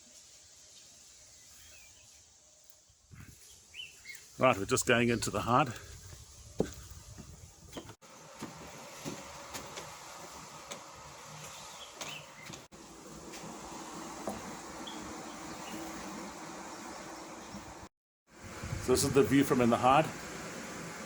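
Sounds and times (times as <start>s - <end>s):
distant motor drone: 8.1s - 21.0s.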